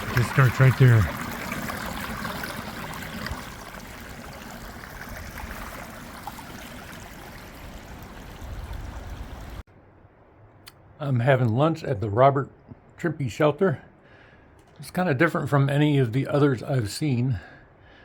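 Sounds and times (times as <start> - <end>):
spring water trickling: 0.0 - 9.6.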